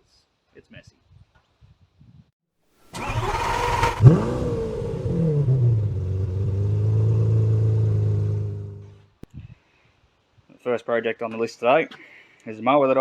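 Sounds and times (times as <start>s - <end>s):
engine starting and idling: 2.9s - 8.6s.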